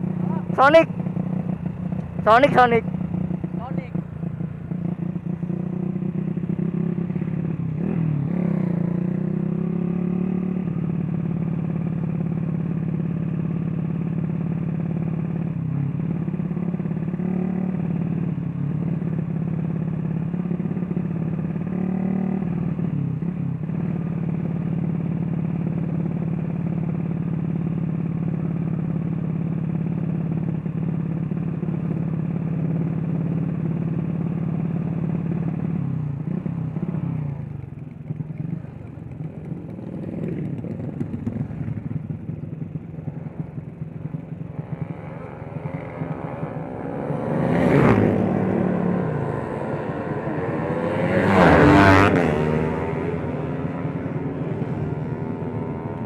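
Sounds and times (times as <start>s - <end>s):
small motorcycle engine running: 0.0s - 56.0s.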